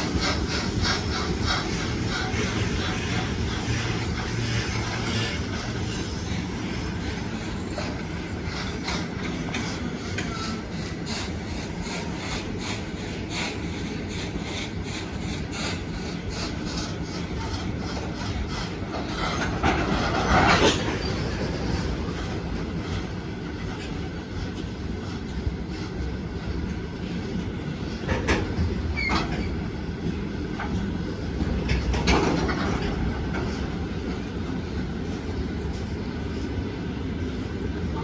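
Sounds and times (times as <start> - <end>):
wheels clacking over rail joints: 0.0 - 23.0, 30.6 - 33.8
freight train rumbling past: 0.0 - 38.0.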